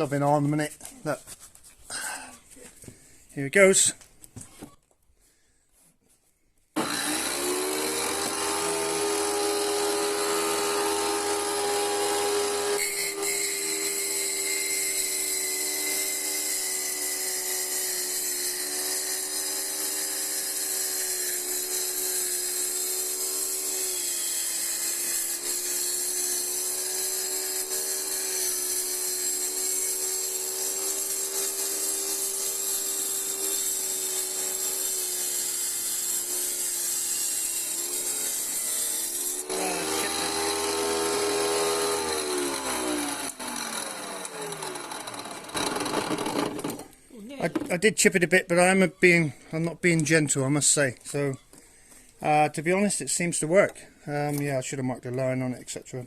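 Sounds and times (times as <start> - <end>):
tile saw motor whining: 6.8 - 47.6.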